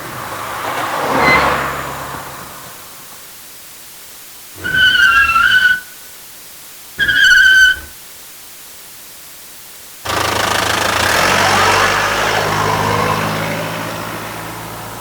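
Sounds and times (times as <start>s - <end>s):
road noise: 0.0s - 3.6s, 10.0s - 15.0s
truck engine rumble: 10.0s - 15.0s.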